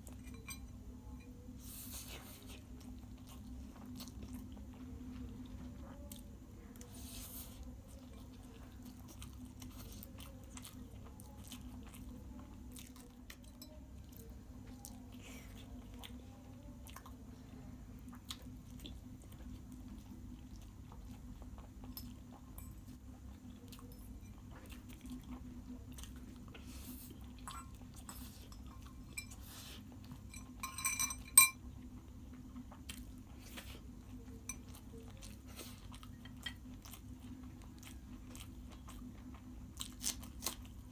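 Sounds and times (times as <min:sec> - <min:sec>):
steady low hum: 0:00.0 - 0:40.9
spoon clinking glass bowl: 0:00.2 - 0:01.3, 0:28.5 - 0:29.4, 0:30.3 - 0:31.6
chewing noodles: 0:01.9 - 0:40.9.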